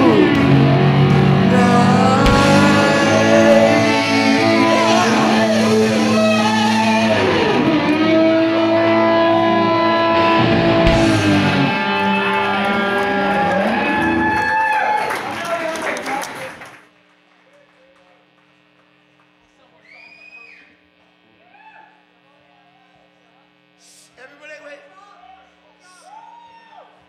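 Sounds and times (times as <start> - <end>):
sliding guitar notes: 0.0 - 13.5
live rock band playing: 1.4 - 13.2.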